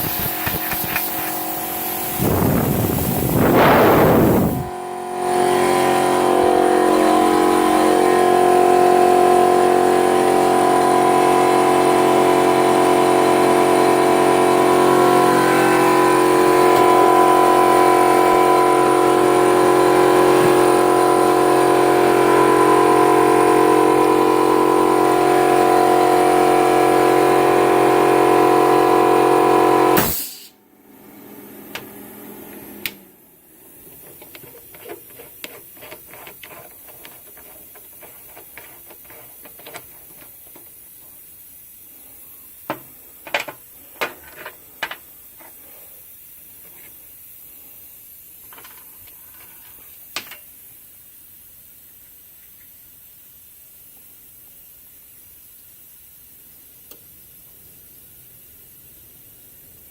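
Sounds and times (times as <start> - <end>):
rush of air: 0.0 - 4.7
plasma cutter electrical buzz: 0.0 - 30.6.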